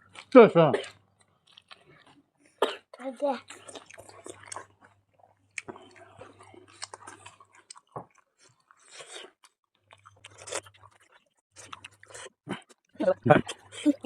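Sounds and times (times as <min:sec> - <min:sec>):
crunchy chewing: 0:00.0 - 0:14.0.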